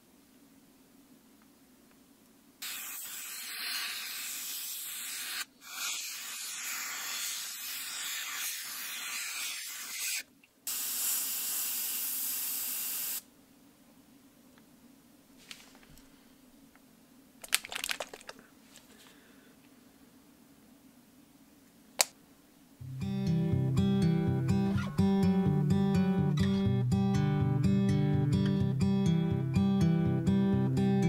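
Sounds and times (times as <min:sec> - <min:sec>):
airbrush spraying paint: 0:02.6 - 0:13.3.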